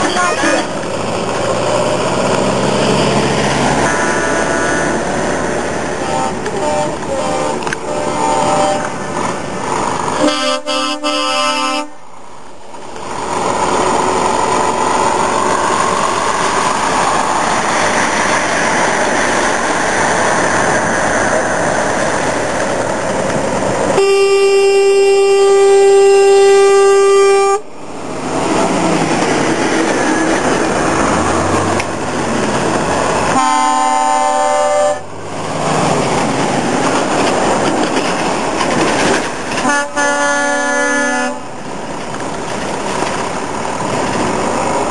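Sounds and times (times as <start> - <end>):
steady rushing noise: 0.0 - 10.3, 11.9 - 24.0, 25.6 - 40.0, 41.3 - 44.9
truck air horn blasts: 3.8 - 8.9, 10.2 - 12.0, 24.0 - 27.6, 33.3 - 35.1, 39.6 - 41.5.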